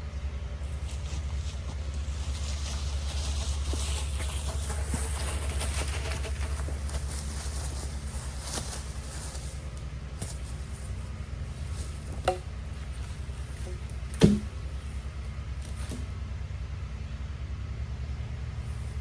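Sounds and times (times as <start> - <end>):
wooden posts knocking together: 0.9 - 16.1.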